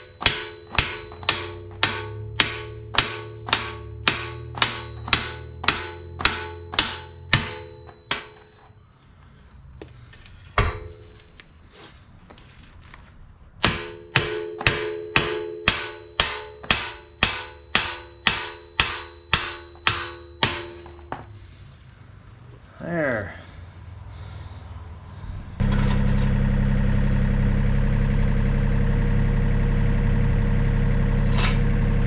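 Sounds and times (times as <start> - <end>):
hammer ringing on steel: 0.0 - 8.9, 10.6 - 11.6, 13.6 - 21.4.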